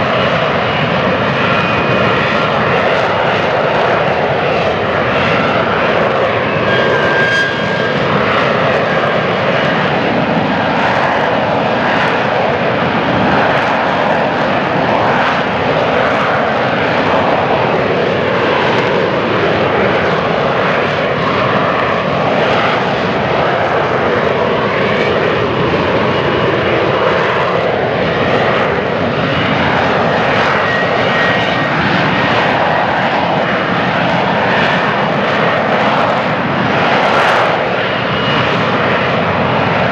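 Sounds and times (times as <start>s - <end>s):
jet engine roar: 0.0s - 39.9s.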